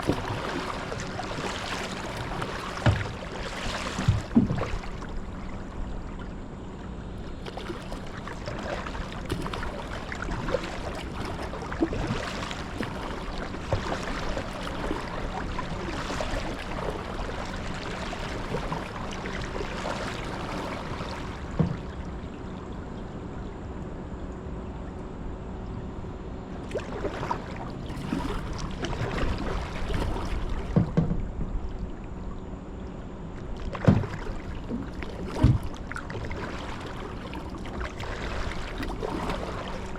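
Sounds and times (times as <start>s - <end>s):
paddle water splashing: 0.0s - 22.8s, 26.6s - 32.0s, 33.4s - 39.9s
knocks on kayak: 2.2s - 4.9s, 21.5s - 21.9s, 30.6s - 31.6s, 33.7s - 34.4s, 35.3s - 35.8s.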